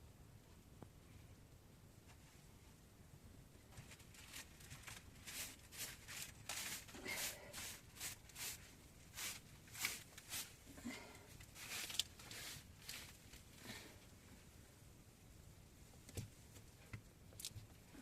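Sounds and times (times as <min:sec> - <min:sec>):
rustling crunching noises: 0:03.6 - 0:14.0.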